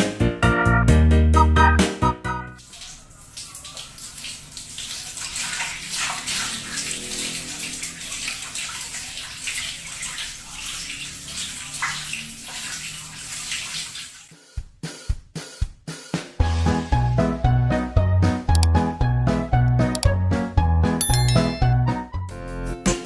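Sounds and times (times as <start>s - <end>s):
water splashing and running: 2.6s - 14.3s.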